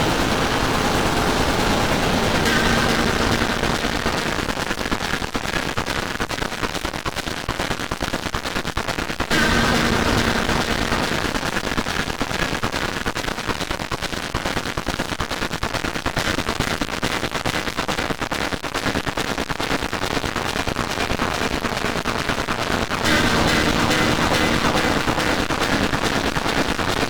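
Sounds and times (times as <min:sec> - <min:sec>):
harsh electronic crackling noise: 0:00.0 - 0:07.8, 0:08.7 - 0:13.4, 0:18.0 - 0:27.0.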